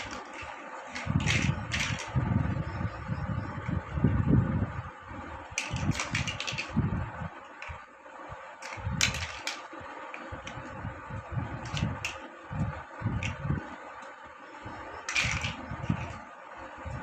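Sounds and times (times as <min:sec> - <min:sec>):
plastic blocks clicking: 0:00.0 - 0:02.2, 0:05.5 - 0:06.7, 0:08.6 - 0:10.6, 0:11.6 - 0:12.3, 0:15.0 - 0:16.2
faint steady hum: 0:00.0 - 0:17.0.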